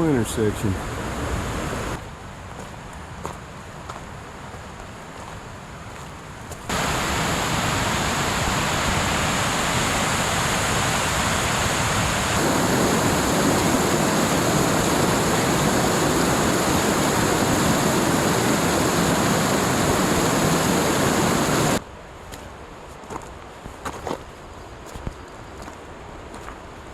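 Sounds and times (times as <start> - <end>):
rushing water roar: 0.0 - 2.0, 6.7 - 21.8.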